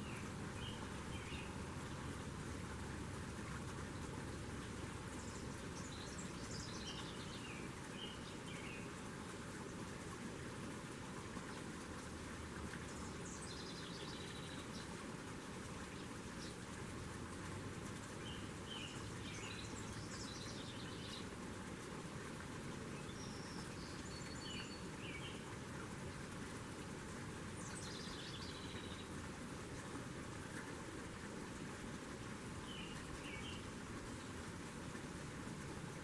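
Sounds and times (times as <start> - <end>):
songbirds chirping: 0.0 - 2.8, 3.4 - 10.0, 12.5 - 36.0
steady outdoor hiss: 0.0 - 36.0.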